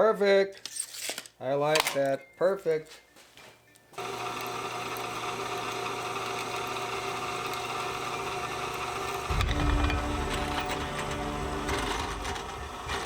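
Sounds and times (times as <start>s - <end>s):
drill press motor humming: 4.0s - 13.0s.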